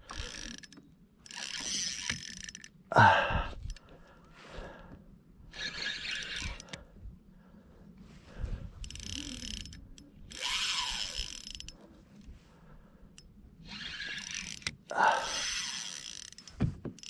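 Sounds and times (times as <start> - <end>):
fishing reel clicking and whirring: 0.0 - 2.8, 5.5 - 6.9, 8.7 - 12.3, 13.2 - 17.0.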